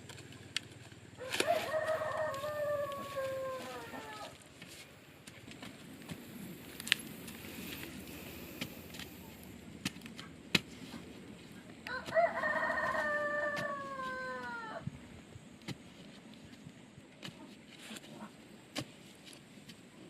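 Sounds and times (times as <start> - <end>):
rooster crowing: 1.2 - 4.4, 11.9 - 14.9.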